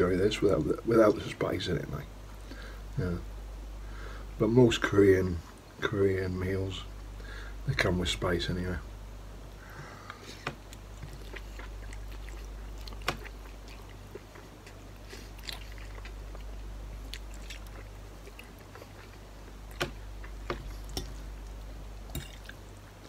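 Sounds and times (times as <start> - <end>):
steady low hum: 0.0 - 23.0
man chewing noodles: 10.1 - 23.0.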